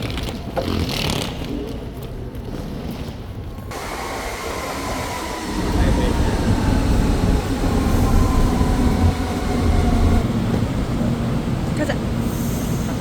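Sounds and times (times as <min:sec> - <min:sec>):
train rumble: 0:03.6 - 0:13.0.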